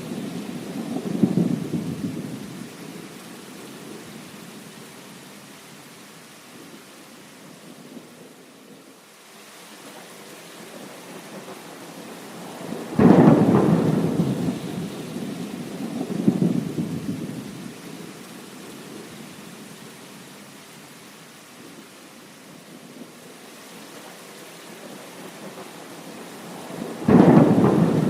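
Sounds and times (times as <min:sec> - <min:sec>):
heavy rain: 0:00.0 - 0:28.0
thunderclap rumbling: 0:12.6 - 0:17.6, 0:25.5 - 0:28.0.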